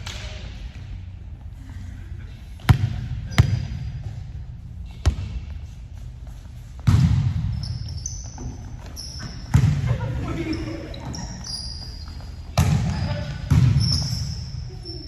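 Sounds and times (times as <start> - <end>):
sneakers squeaking on court: 2.6 - 15.0.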